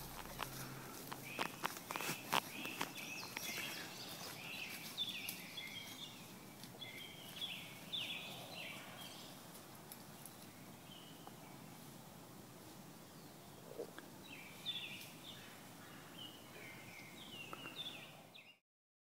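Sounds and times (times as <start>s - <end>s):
footsteps through leaf litter: 0.0s - 7.8s
faint outdoor ambience: 0.0s - 18.6s.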